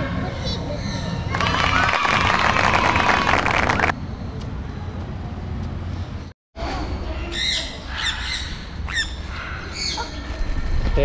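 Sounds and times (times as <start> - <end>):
birds squawking: 7.3 - 10.7.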